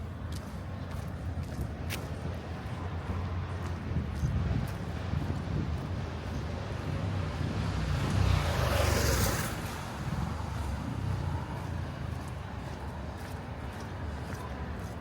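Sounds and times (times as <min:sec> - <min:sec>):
street traffic rumble: 0:00.0 - 0:15.0
vehicle passing close by: 0:03.0 - 0:12.9.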